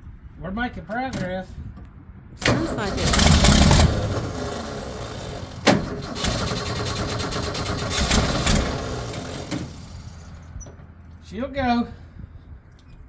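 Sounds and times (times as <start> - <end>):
car engine running rough: 2.4 - 11.2
engine pop: 2.4 - 11.2.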